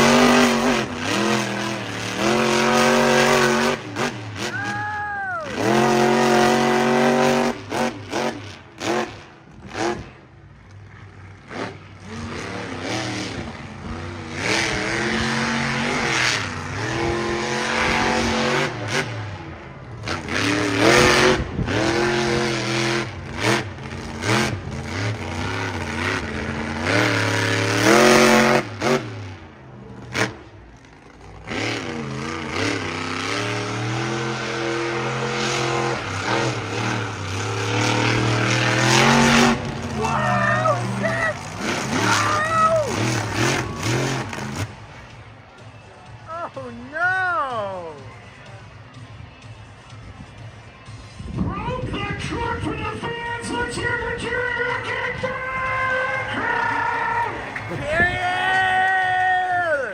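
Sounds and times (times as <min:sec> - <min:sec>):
truck engine revving hard: 0:00.0 - 0:10.2, 0:10.9 - 0:45.3.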